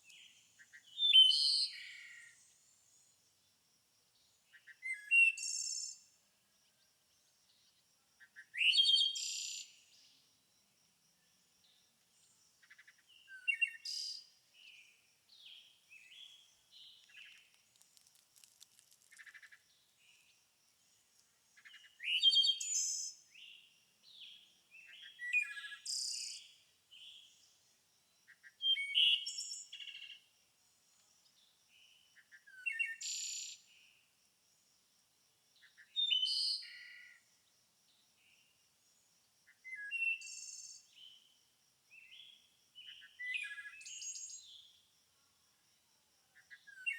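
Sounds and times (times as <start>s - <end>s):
songbirds singing: 0.0s - 3.3s, 11.2s - 30.3s, 31.2s - 34.0s, 39.5s - 44.8s
soft bird chirps: 12.3s - 20.4s.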